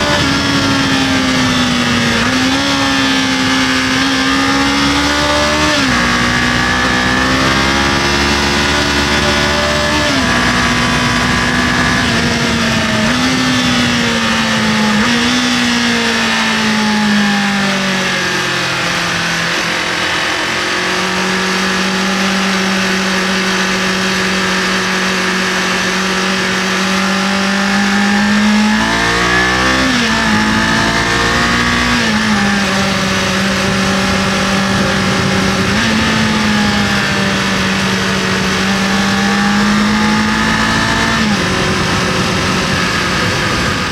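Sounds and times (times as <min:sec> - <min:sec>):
wind rush: 0:00.0 - 0:16.5, 0:28.0 - 0:43.9
motorcycle engine revving: 0:00.0 - 0:43.9.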